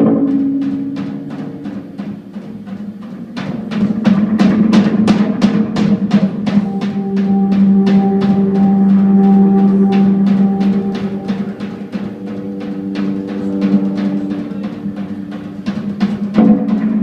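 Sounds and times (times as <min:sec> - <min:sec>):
drum kit beat: 0:00.0 - 0:17.0
jazz-rock band playing: 0:06.6 - 0:16.4.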